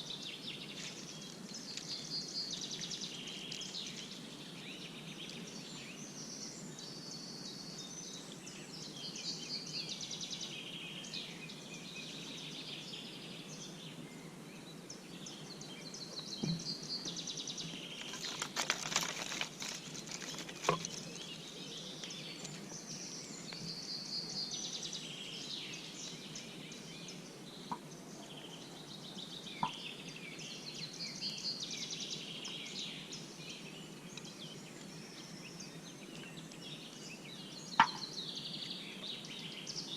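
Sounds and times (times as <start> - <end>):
songbirds chirping and singing: 0.0 - 39.9
single knock: 16.4 - 16.7.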